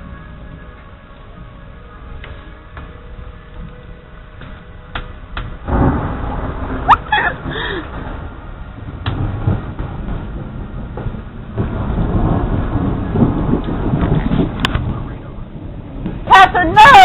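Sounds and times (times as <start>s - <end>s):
thunder rumbling: 0.0s - 17.0s.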